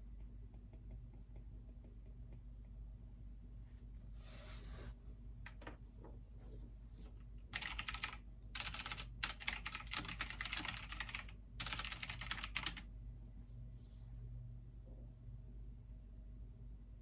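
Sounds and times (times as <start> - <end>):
computer keyboard typing: 7.6 - 12.9.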